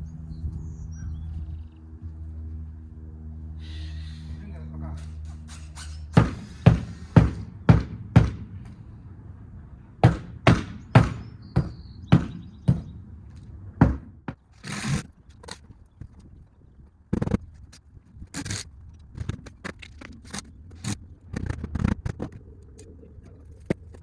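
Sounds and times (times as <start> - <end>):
hammer striking wooden board: 6.1 - 8.6, 10.0 - 13.0, 13.8 - 14.4.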